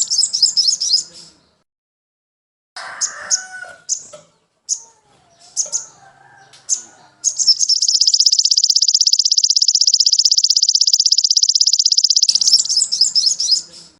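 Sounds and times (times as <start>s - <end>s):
songbird chirps and fast trill: 0.0s - 1.1s, 6.7s - 13.8s
faint lower bird warbling: 7.2s - 13.6s.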